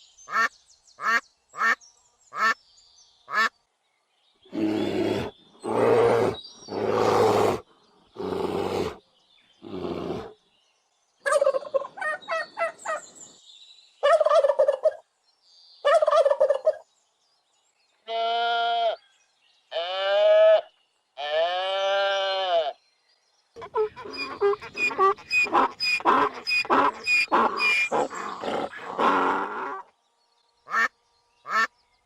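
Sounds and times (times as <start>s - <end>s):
long quavering animal calls: 4.5s - 7.6s, 8.2s - 9.0s, 23.6s - 29.9s, 30.7s - 30.9s, 31.5s - 31.7s
fast rattling animal call: 23.6s - 29.9s
hoarse animal calls: 23.6s - 29.9s.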